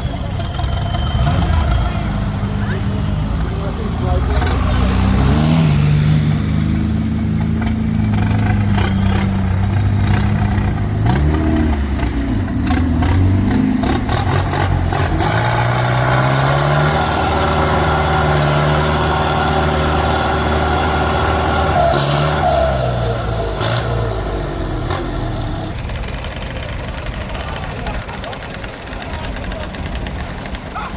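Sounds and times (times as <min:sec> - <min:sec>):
diesel engines revving under load: 0:00.0 - 0:30.9
high whistle: 0:00.3 - 0:02.0, 0:12.7 - 0:16.6.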